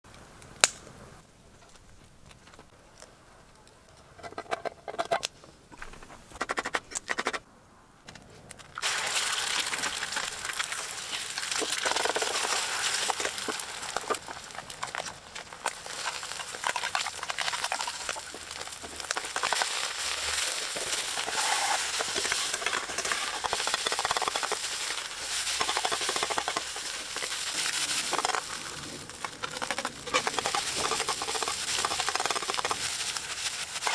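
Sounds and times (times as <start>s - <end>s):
food sizzling in frying pan: 8.8s - 33.9s.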